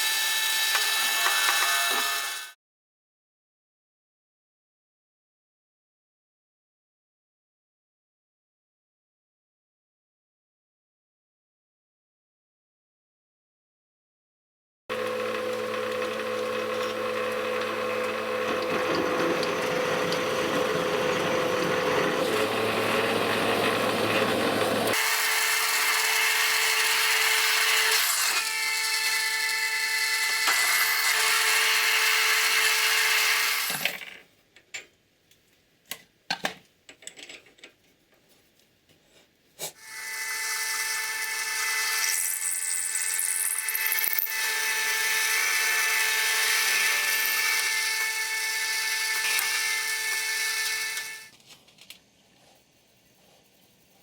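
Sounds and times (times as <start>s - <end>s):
cutting or grinding noise: 14.9s - 33.8s
power tool motor hum: 14.9s - 34.0s, 39.8s - 51.3s.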